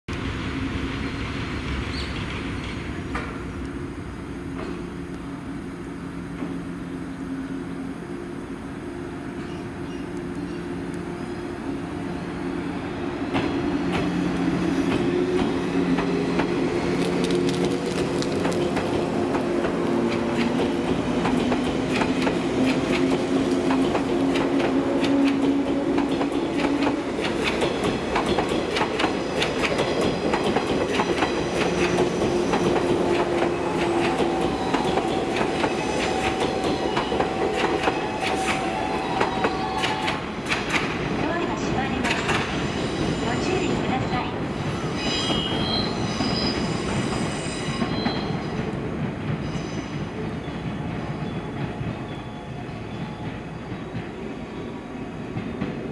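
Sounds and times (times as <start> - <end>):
electric train humming: 0.1 - 55.9
wheels clicking over rail joints: 13.3 - 41.1.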